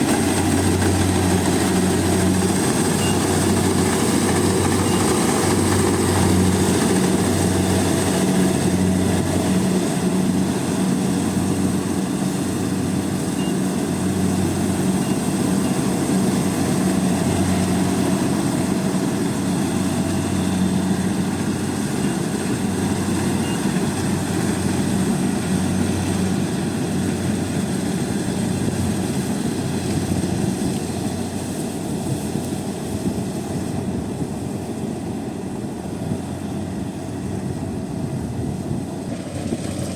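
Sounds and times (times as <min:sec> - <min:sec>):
combine harvester engine hum: 0:00.0 - 0:39.9
threshing machinery clatter: 0:39.0 - 0:39.9.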